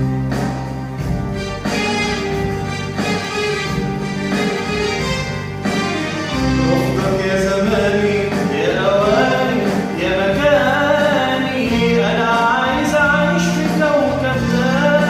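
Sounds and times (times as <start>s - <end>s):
instrumental backing: 0.0s - 15.0s
man singing: 6.5s - 15.0s.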